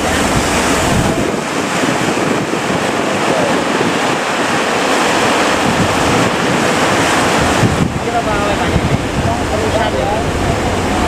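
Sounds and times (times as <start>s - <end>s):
heavy surf breaking: 0.0s - 11.0s
wind buffeting microphone: 0.0s - 11.0s.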